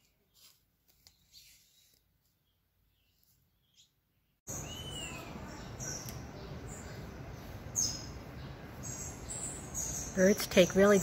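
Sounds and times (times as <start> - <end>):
birds chirping: 2.4 - 11.0.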